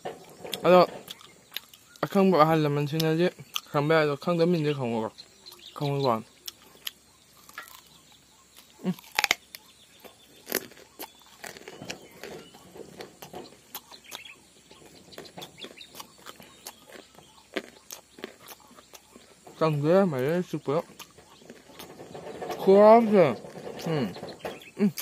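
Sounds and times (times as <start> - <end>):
chickens clucking: 0.0 - 25.0
chewing and lip-smacking: 0.5 - 2.0, 6.4 - 19.4, 20.8 - 21.9.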